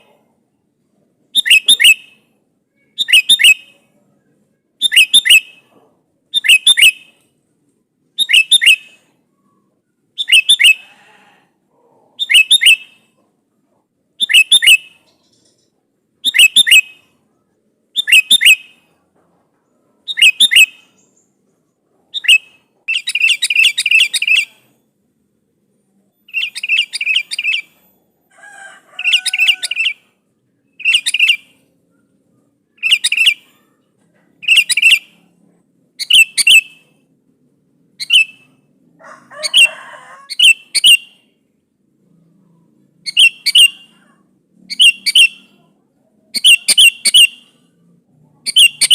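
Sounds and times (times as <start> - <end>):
bird chattering: 1.3 - 2.2, 14.2 - 17.2, 20.1 - 24.8, 26.3 - 27.8, 29.0 - 35.4, 36.0 - 37.0, 38.0 - 38.6, 39.3 - 41.3, 43.0 - 47.7, 48.4 - 48.9.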